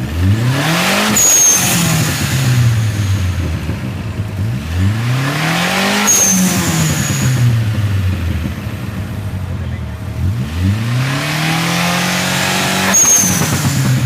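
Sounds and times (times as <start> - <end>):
car engine revving: 0.0 - 14.0
short high whistle: 1.1 - 2.0, 6.0 - 7.2, 12.8 - 13.7.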